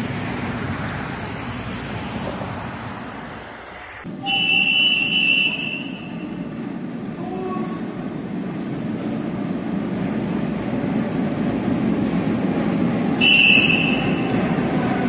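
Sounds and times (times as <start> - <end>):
low rail and traffic rumble: 0.0 - 15.0
high-pitched train horn blast: 4.1 - 6.4, 13.2 - 15.0.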